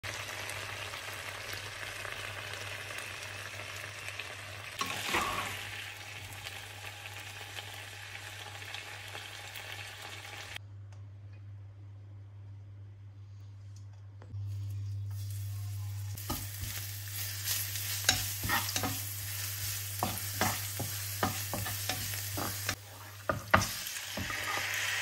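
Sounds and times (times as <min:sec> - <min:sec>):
stir-fry sizzling in a wok: 0:00.0 - 0:10.6, 0:15.1 - 0:25.0
spatula scraping wok: 0:04.8 - 0:05.7, 0:14.5 - 0:25.0
low steady hum: 0:10.6 - 0:17.2.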